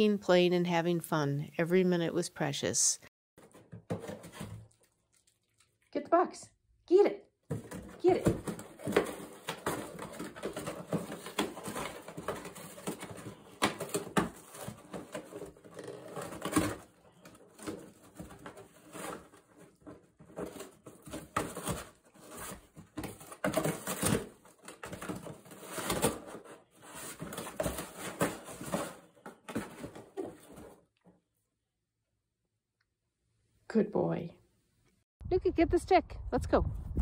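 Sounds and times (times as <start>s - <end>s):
dog tearing and chewing cardboard: 7.6s - 30.3s.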